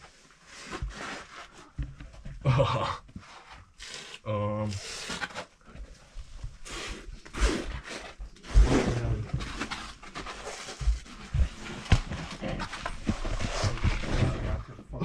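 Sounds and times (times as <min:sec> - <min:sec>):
scuffs and sharp knocks: 0:06.2 - 0:14.7.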